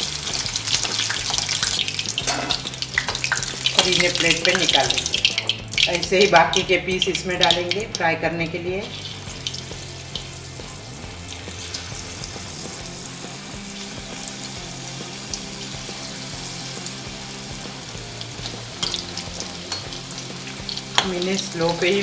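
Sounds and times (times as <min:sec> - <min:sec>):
chicken deep-frying in oil: 0:00.0 - 0:22.0
pieces dropped into oil: 0:00.8 - 0:06.7, 0:18.2 - 0:21.2.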